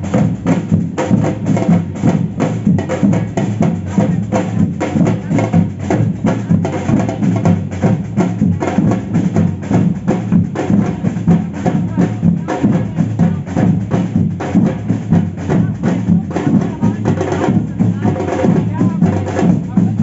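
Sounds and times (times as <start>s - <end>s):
samba percussion band playing: 0.0s - 20.0s.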